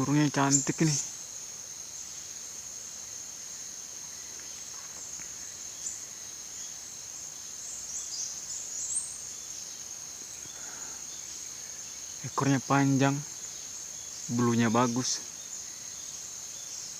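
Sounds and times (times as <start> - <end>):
insect chorus: 0.0 - 16.9.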